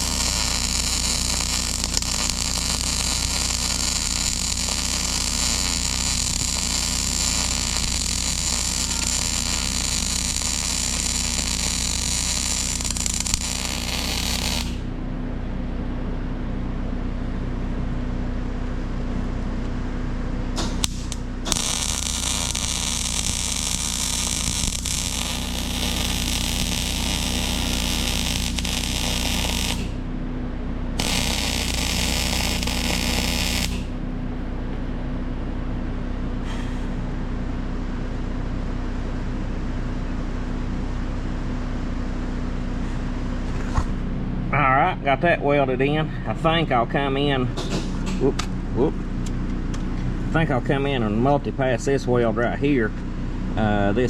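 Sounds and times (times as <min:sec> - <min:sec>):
arc welding hiss: 0:00.0 - 0:14.9, 0:20.6 - 0:30.0, 0:31.0 - 0:33.9
low hum: 0:00.0 - 0:51.2.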